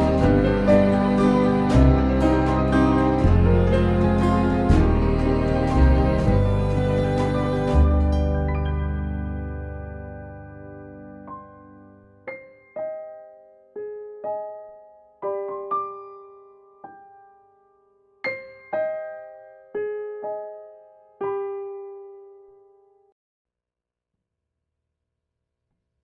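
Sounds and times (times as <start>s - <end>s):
slow solo piano: 0.0s - 23.1s.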